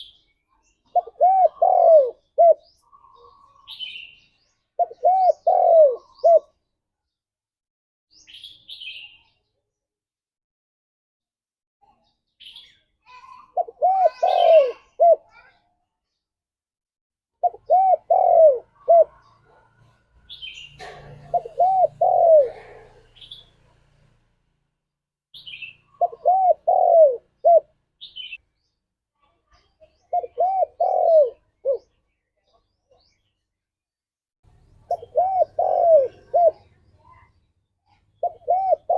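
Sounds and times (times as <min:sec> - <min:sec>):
dove cooing: 0:00.9 - 0:03.8, 0:04.8 - 0:06.5, 0:13.6 - 0:15.4, 0:17.4 - 0:20.0, 0:20.8 - 0:23.4, 0:25.9 - 0:27.7, 0:30.1 - 0:31.9, 0:34.8 - 0:36.7, 0:38.2 - 0:38.9.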